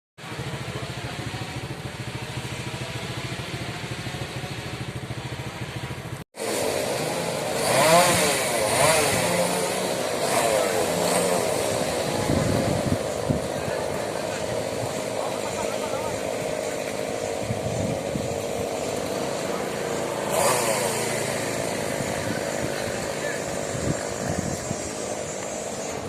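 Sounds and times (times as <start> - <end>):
small engine running: 0.2 - 26.0
engine pitch rising and falling: 0.3 - 26.0.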